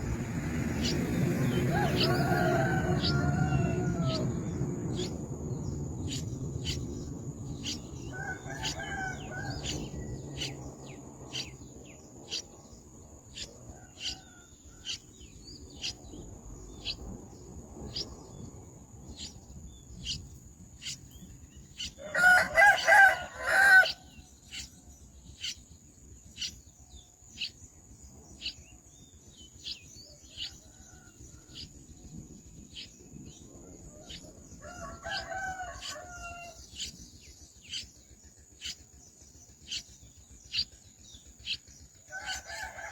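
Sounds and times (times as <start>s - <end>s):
young birds peeping: 0.0s - 42.9s
rooster crowing: 1.4s - 5.1s, 7.6s - 10.6s, 13.7s - 15.0s, 21.9s - 24.2s, 33.6s - 36.6s, 42.1s - 42.9s.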